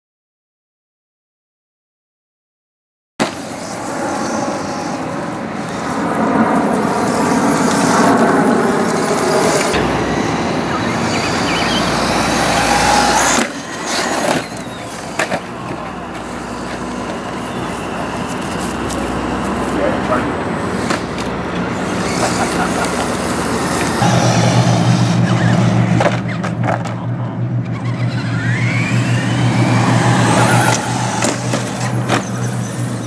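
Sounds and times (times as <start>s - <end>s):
electric motor whining: 3.4s - 26.8s, 27.6s - 33.0s
tyres rattling on ground: 6.7s - 33.0s.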